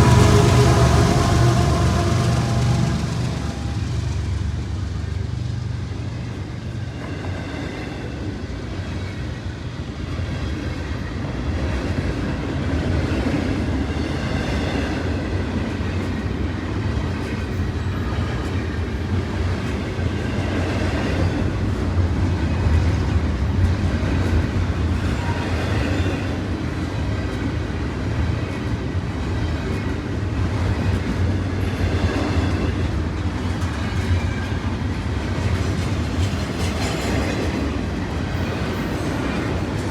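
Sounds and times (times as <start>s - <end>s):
rail clicks: 0.0s - 6.4s, 15.6s - 39.9s
train rumbling on tracks: 0.0s - 39.9s.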